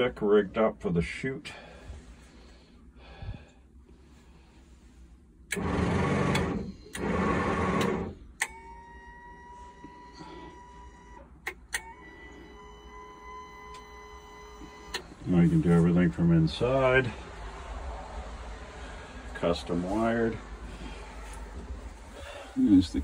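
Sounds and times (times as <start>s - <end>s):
faint electrical whine: 0.0s - 17.1s
electric chute actuator running: 5.5s - 15.1s.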